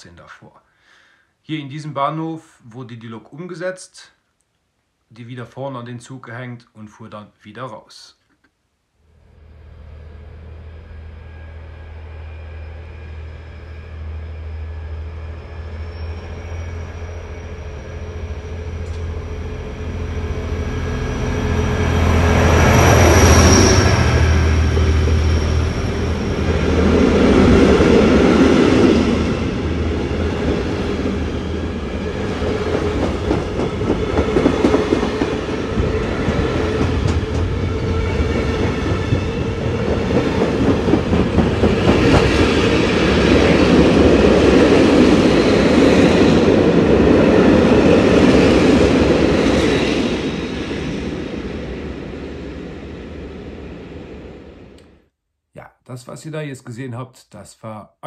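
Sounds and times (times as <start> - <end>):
diesel locomotive engine: 9.2 - 54.8.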